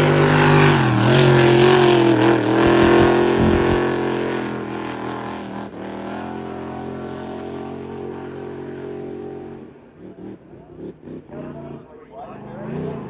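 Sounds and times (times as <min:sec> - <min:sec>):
race boat engine running: 0:00.0 - 0:04.8.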